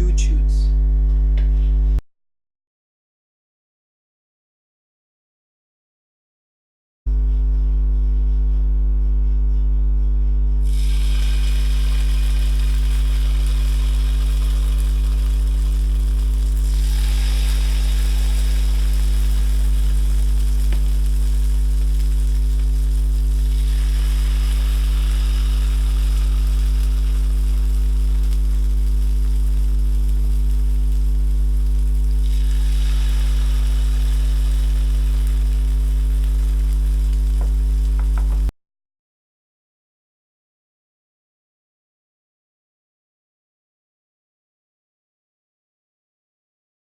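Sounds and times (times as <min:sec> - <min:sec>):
low steady hum: 0:00.0 - 0:02.0, 0:07.1 - 0:38.5
batter sizzling in oil: 0:10.6 - 0:38.5.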